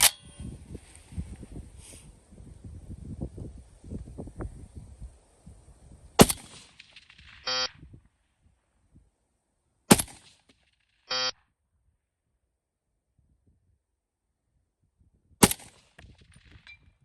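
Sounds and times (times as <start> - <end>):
rifle shots: 6.2 - 7.7, 9.9 - 10.8, 15.4 - 16.6
short buzzing tone: 7.5 - 7.8, 11.1 - 11.4.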